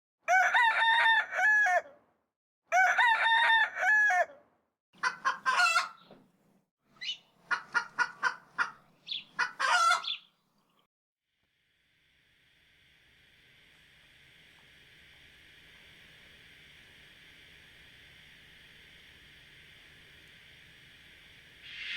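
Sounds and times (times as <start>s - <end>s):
rooster crowing: 0.3s - 2.0s, 2.7s - 4.4s
short clucking calls: 7.0s - 10.2s.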